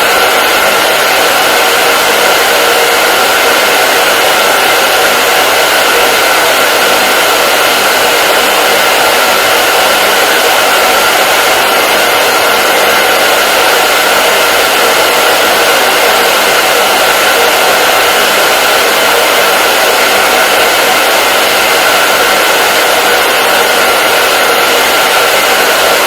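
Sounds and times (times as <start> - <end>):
hair dryer running: 0.0 - 26.0.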